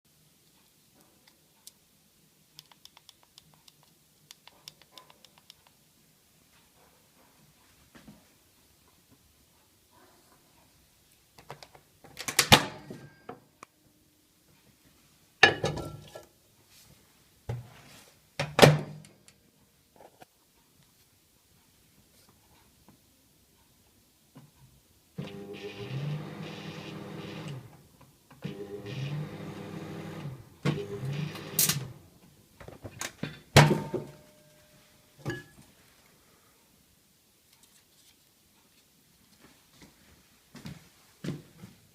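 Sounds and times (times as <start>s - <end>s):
microwave oven humming: 25.2s - 27.7s, 28.4s - 31.8s.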